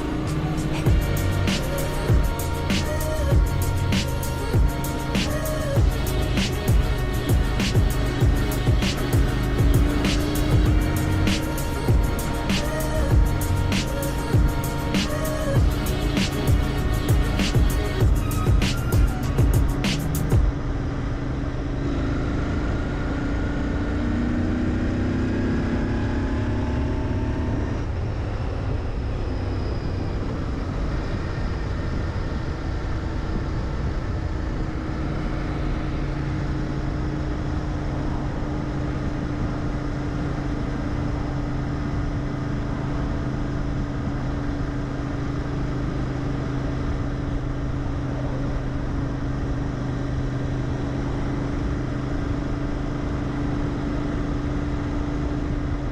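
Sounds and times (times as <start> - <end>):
motorcycle engine while riding: 0.0 - 55.9.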